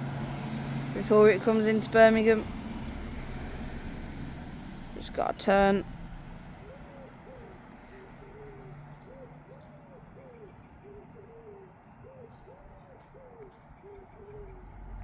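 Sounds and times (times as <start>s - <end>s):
bird hooting: 6.4s - 14.7s.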